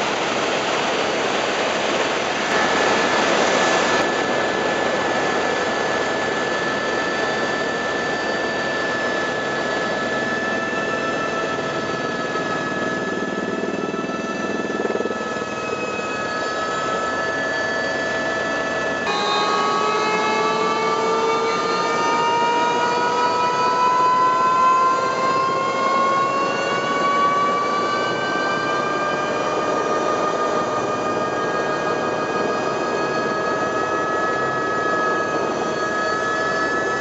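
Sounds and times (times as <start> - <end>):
rushing noise: 0.0 - 8.0
helicopter turbine whine: 0.0 - 37.0.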